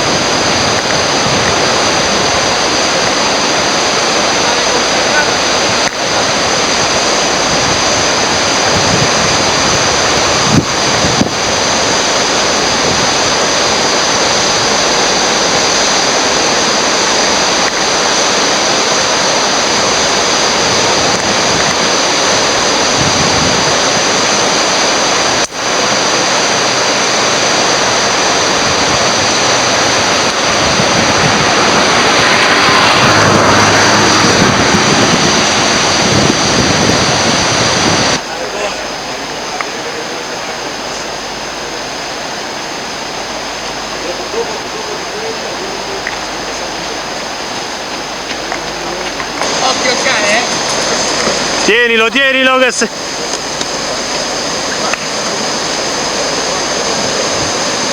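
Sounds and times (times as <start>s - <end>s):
wind on microphone: 0.0s - 38.4s, 52.9s - 57.9s
loud rush of water: 0.0s - 57.9s.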